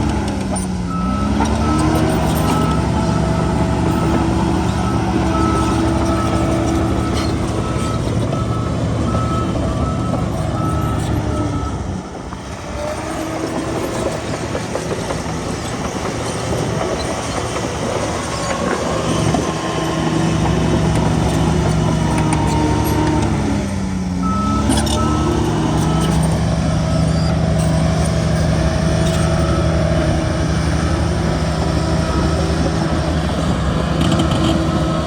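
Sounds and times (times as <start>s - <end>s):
heavy diesel machinery running: 0.0s - 35.0s
reversing alarm beeping: 0.9s - 12.0s, 24.2s - 35.0s.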